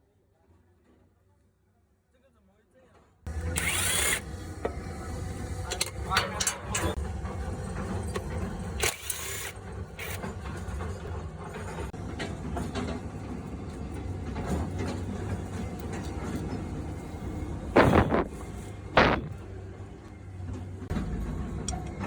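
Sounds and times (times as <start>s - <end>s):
mechanical clicks and clatter: 8.8s - 10.3s
steady low hum: 16.9s - 19.7s.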